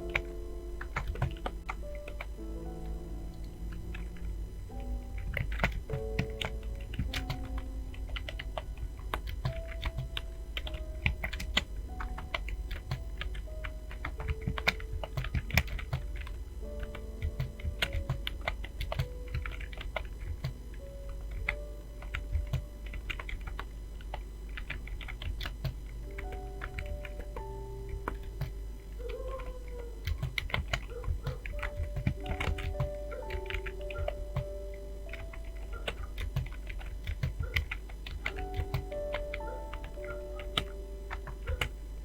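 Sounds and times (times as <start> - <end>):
fast keyboard typing: 0.0 - 41.8
soft background music: 0.0 - 42.0.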